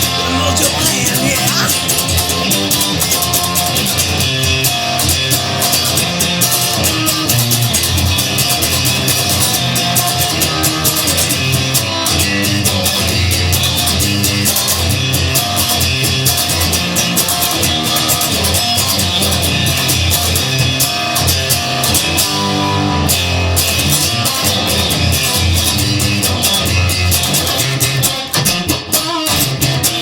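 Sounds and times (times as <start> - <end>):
electric guitar: 0.0 - 30.0.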